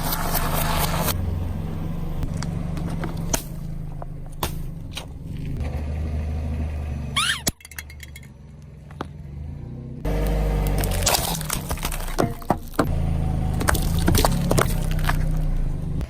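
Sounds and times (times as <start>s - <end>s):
low motor-like drone: 0.0s - 7.1s
squeaky warbling glide: 7.1s - 7.6s.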